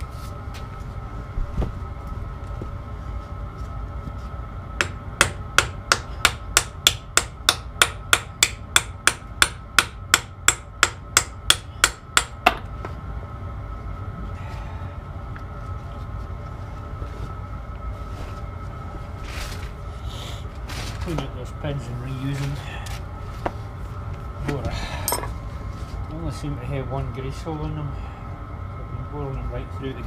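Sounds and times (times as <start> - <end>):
hammer striking steel: 4.8 - 12.6.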